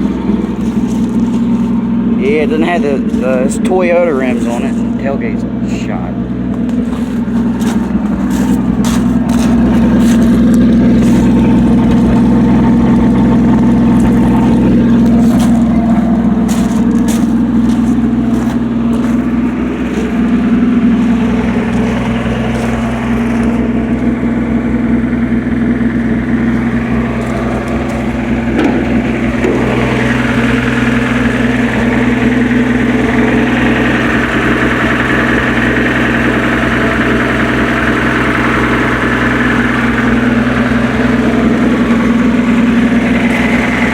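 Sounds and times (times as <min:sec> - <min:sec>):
engine idling: 0:00.0 - 0:43.9.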